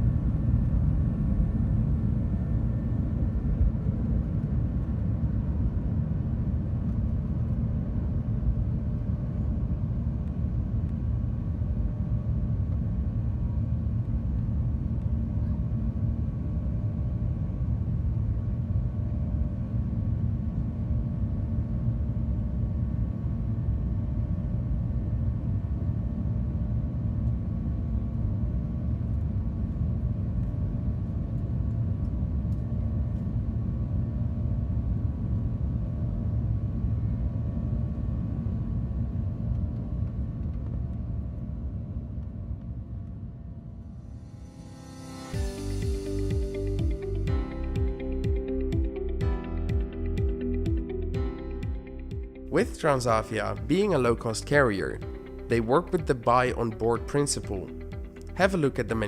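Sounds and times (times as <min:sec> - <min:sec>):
airliner cabin rumble: 0:00.0 - 0:43.9
faint steady hum: 0:00.0 - 0:59.0.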